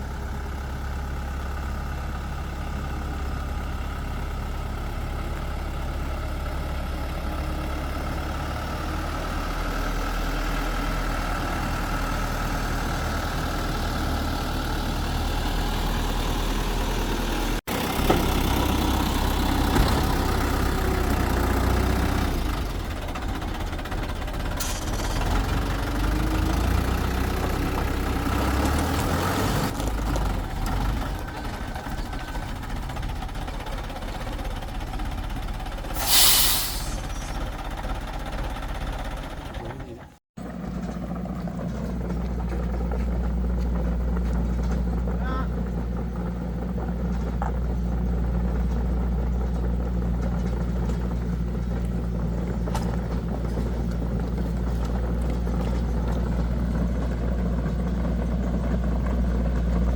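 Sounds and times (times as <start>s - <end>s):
engine running: 0.0s - 59.9s
short loud hiss: 35.9s - 37.4s.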